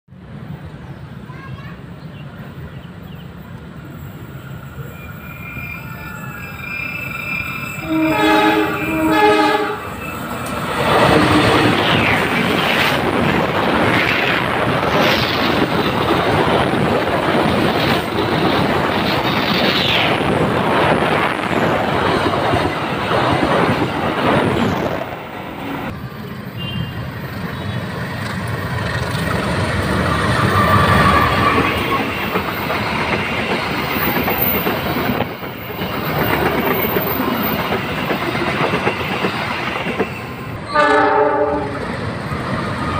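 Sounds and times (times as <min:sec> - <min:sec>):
high-pitched wheel squeals: 0:04.5 - 0:10.5, 0:30.0 - 0:32.2
train wheels clattering on rails: 0:05.7 - 0:25.9, 0:27.4 - 0:40.6
train horn: 0:07.7 - 0:10.1, 0:11.0 - 0:11.7, 0:40.7 - 0:41.9.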